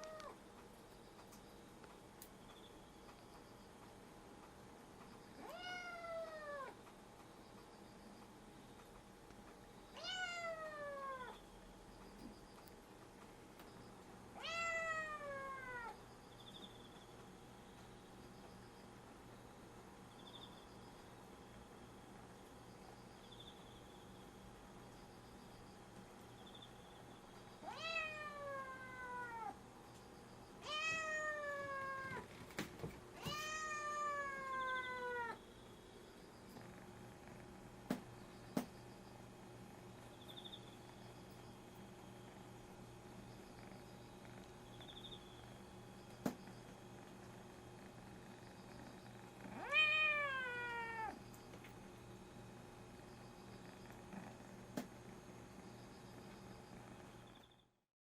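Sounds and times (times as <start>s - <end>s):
kitten meowing: 33.2s - 35.4s.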